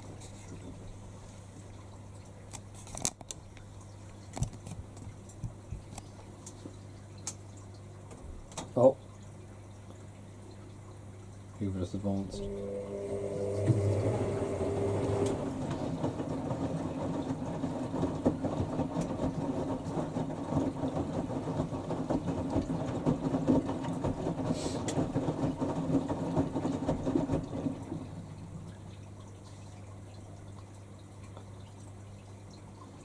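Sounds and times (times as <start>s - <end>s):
washing machine spinning: 12.0s - 30.4s.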